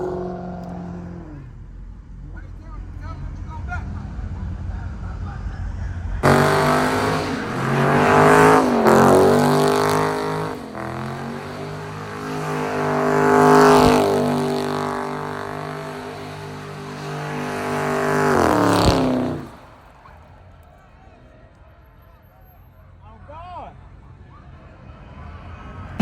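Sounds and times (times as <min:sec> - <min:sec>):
car engine revving loudly: 0:00.0 - 0:01.6, 0:06.2 - 0:19.8.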